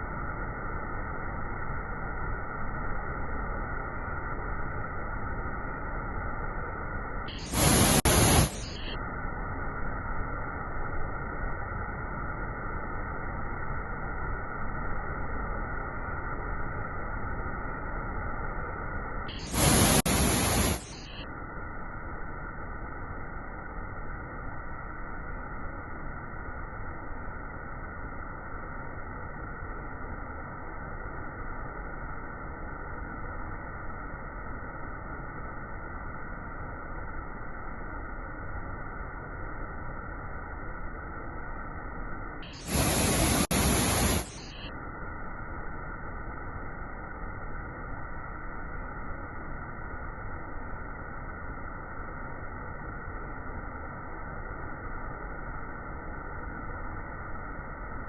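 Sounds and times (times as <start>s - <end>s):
bursts of hiss: 7.3s - 8.9s, 19.4s - 21.1s, 42.5s - 44.6s
muffled waterfall rushing: 19.4s - 21.1s, 42.6s - 44.7s.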